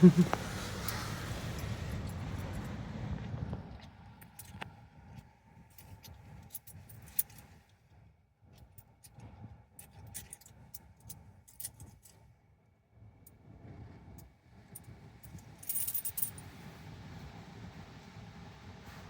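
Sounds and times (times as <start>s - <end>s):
low steady rumble: 0.0s - 7.3s
coins clinking in hand: 15.6s - 16.4s.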